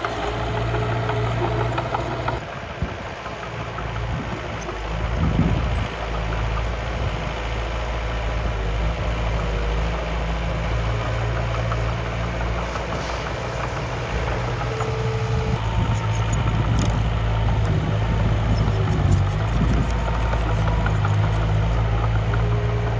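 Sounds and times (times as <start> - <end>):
model machine motor humming: 0.0 - 2.4, 13.7 - 22.9.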